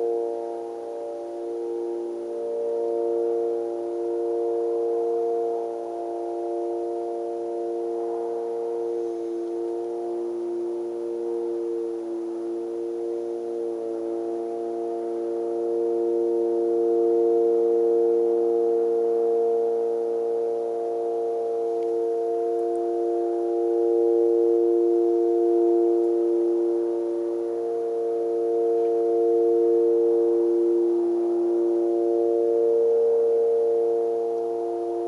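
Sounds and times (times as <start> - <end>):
low droning hum: 0.0 - 35.0.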